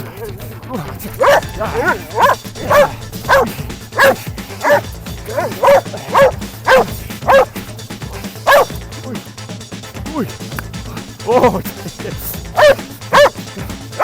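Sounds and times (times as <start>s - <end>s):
background music: 0.0s - 14.0s
dog barking: 1.1s - 8.8s, 12.4s - 14.0s.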